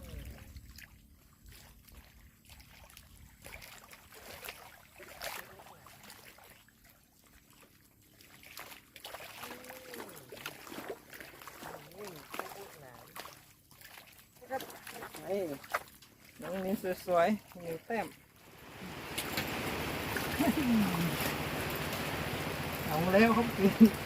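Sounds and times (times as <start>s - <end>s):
water trickling and lapping: 0.0s - 24.0s
water drips: 8.2s - 24.0s.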